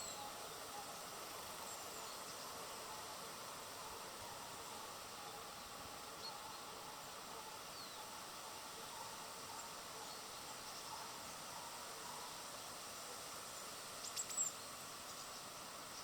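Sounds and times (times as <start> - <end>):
steady outdoor hiss: 0.0 - 16.0
faint high bird chirps: 14.0 - 15.4.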